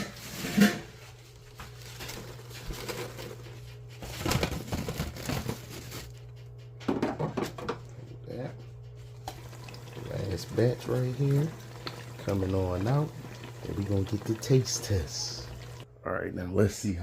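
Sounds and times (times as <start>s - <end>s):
rustling and crinkling handling: 0.1s - 6.6s.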